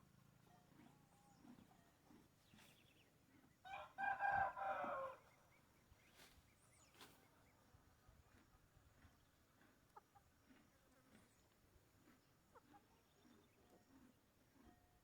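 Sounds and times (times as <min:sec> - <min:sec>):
rooster crowing: 0:03.7 - 0:05.2.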